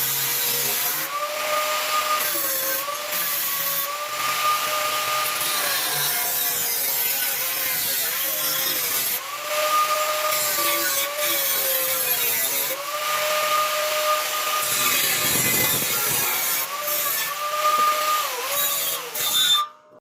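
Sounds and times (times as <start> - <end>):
power tool motor whine: 12.8 - 19.2.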